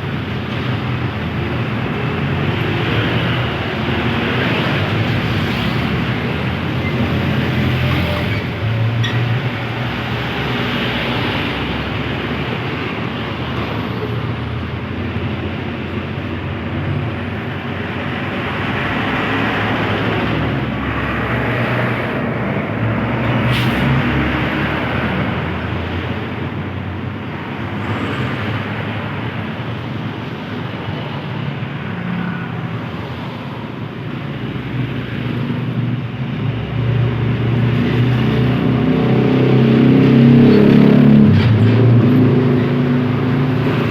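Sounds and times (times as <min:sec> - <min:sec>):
highway traffic rumble: 0:00.0 - 0:43.9
vehicle approaching: 0:34.3 - 0:43.9.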